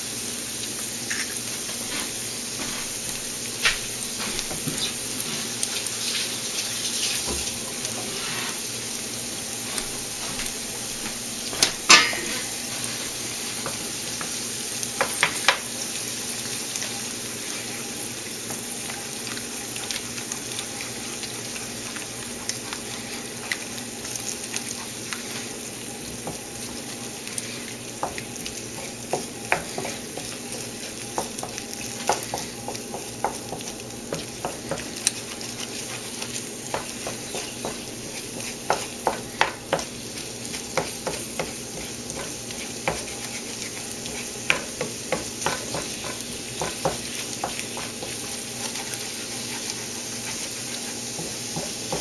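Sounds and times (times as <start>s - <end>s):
eggs sizzling in oil: 0.0s - 52.0s
spatula scraping a pan: 1.1s - 3.0s, 4.1s - 8.8s, 11.8s - 14.4s, 24.6s - 52.0s.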